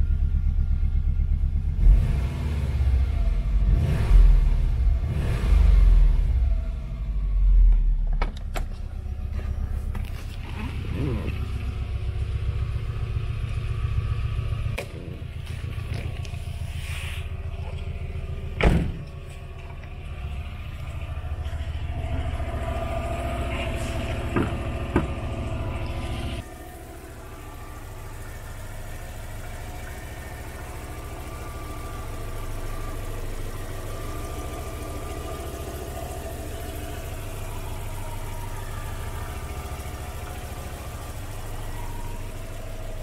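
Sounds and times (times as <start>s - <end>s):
car engine idling: 0.0s - 43.0s
thump: 18.6s - 19.1s.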